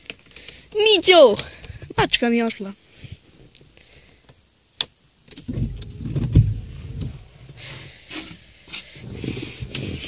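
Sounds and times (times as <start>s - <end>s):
car engine starting and idling: 5.3s - 7.7s.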